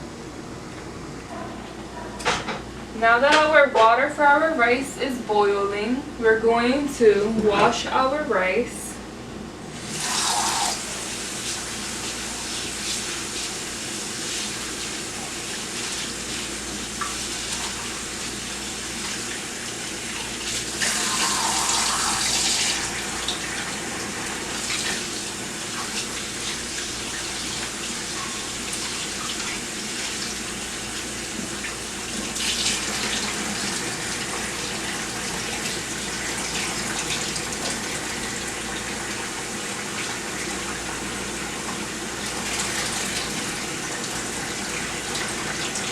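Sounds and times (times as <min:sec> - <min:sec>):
kitchen tap running: 0:09.7 - 0:45.9.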